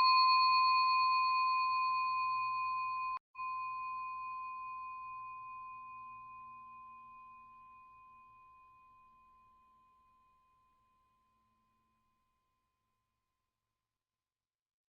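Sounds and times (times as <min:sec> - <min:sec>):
bell-like ringing tone: 0:00.0 - 0:10.1.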